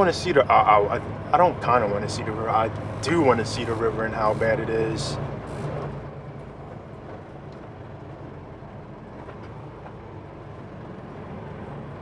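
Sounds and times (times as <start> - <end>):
road noise: 0.0 - 12.0
truck diesel engine drone: 0.0 - 12.0.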